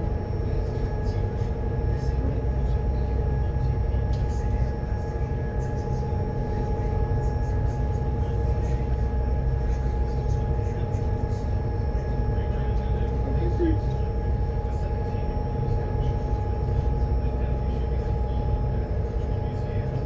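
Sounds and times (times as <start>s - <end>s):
steady tonal hum: 0.0s - 20.0s.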